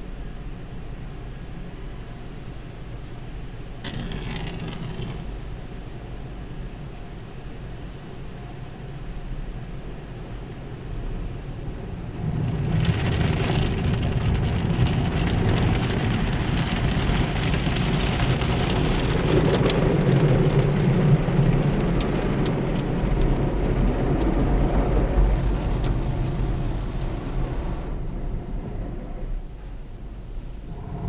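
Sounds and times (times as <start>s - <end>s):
low mechanical rumble: 0.0s - 31.0s
water spraying against car: 3.0s - 8.2s.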